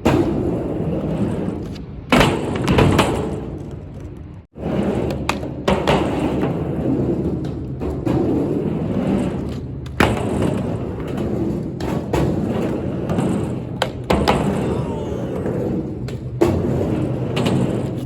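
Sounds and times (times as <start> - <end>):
skateboard wheels rumbling: 0.0 - 18.0.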